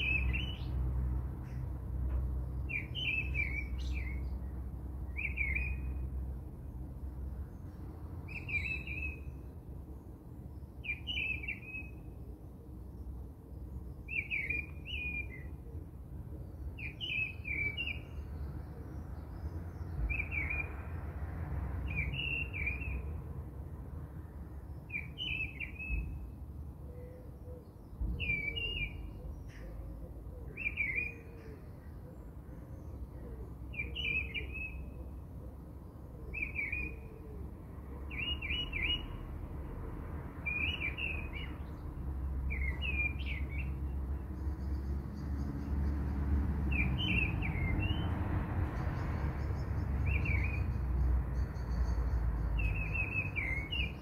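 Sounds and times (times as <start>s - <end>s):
bird chirping: 0.0s - 0.8s, 2.4s - 6.1s, 7.5s - 9.6s, 10.5s - 12.2s, 13.0s - 15.6s, 16.4s - 20.9s, 21.8s - 23.2s, 24.7s - 29.8s, 30.4s - 35.1s, 35.8s - 37.2s, 38.0s - 39.3s, 40.4s - 54.0s.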